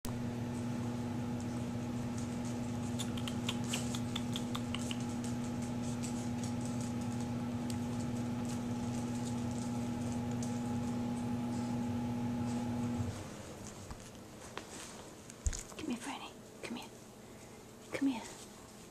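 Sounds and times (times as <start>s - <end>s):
steady machine hum: 0.1s - 14.4s.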